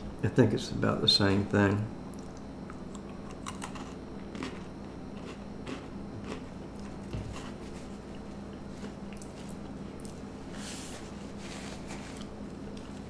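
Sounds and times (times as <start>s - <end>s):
chewing crunchy crackers: 2.1s - 10.3s
paper napkin rustling: 10.4s - 13.0s.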